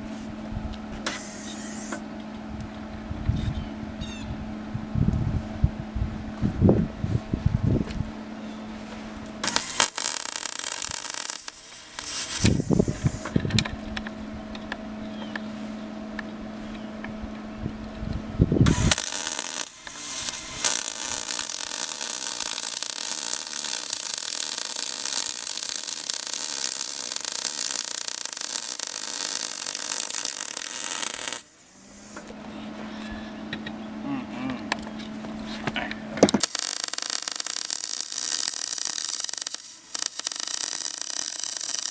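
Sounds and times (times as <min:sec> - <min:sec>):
welding arc hissing and crackling: 0:01.1 - 0:02.0, 0:09.4 - 0:13.4, 0:18.7 - 0:32.2, 0:36.4 - 0:41.9
welding machine hum: 0:01.1 - 0:02.0, 0:09.4 - 0:13.4, 0:18.6 - 0:32.3, 0:36.4 - 0:41.9.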